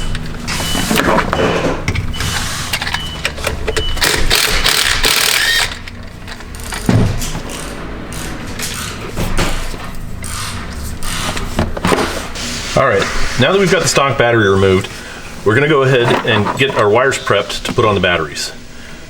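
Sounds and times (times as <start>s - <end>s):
metal parts rattling: 0.0s - 9.0s.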